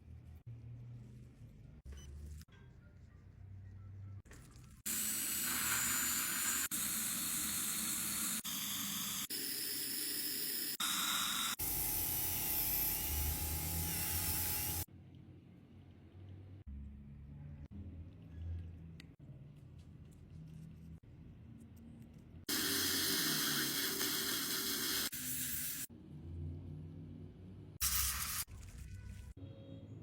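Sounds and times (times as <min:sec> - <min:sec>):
dental equipment hissing spray: 0:04.9 - 0:09.0, 0:22.5 - 0:25.9.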